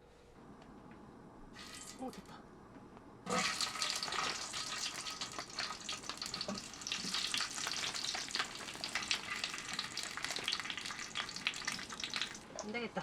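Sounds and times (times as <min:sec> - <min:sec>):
food sizzling in hot oil: 0:01.6 - 0:02.1, 0:03.3 - 0:12.7.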